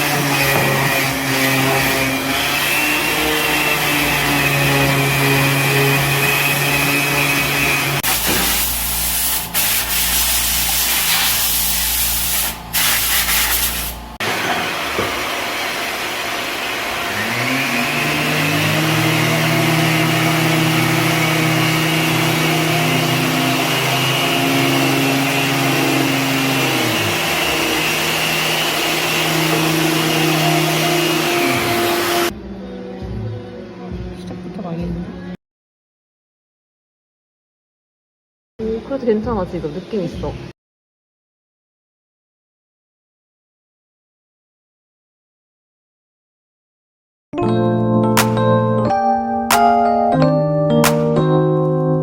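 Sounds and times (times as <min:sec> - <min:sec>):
machine motor running: 0:00.0 - 0:32.3
rough hissing rubbing on wood: 0:08.0 - 0:14.0.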